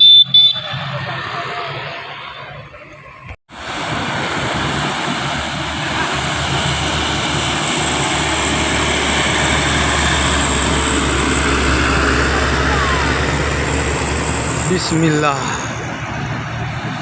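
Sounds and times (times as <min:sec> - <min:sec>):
truck diesel engine droning: 0:00.0 - 0:17.0.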